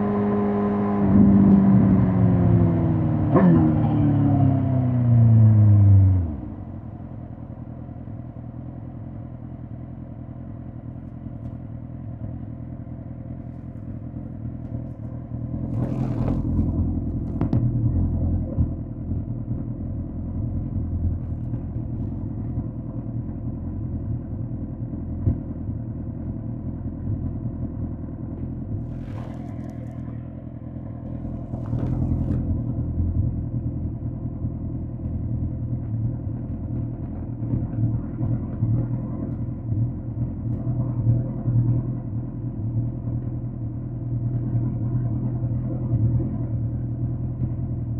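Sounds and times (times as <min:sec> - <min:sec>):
motorcycle engine idling: 0:06.4 - 0:42.4.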